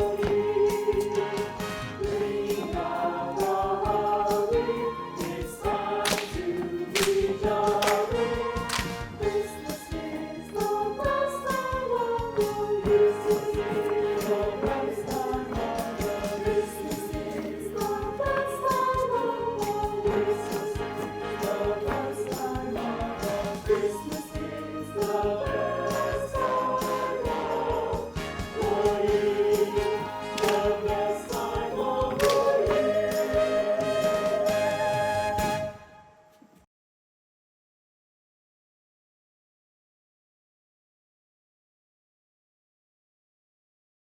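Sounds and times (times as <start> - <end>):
steady percussive beat: 0.0 - 34.7
choir singing held notes: 0.0 - 36.1
instrumental accompaniment: 0.0 - 36.2.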